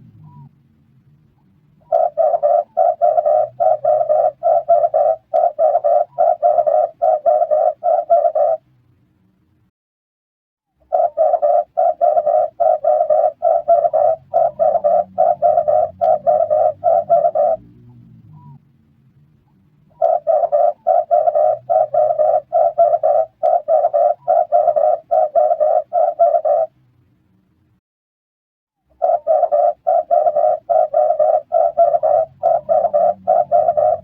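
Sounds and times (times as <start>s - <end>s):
dove cooing rapidly: 1.8s - 8.6s, 10.8s - 18.6s, 19.9s - 26.8s, 28.9s - 34.0s.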